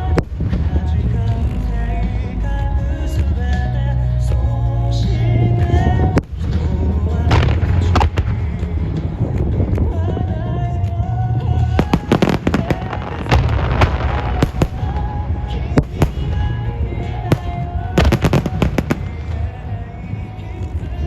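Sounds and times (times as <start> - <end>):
music: 0.0 - 21.0
firework shells bursting: 11.8 - 20.0.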